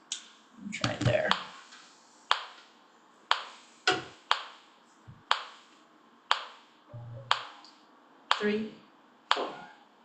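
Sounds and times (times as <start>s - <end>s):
faint low sounds: 6.9s - 7.8s.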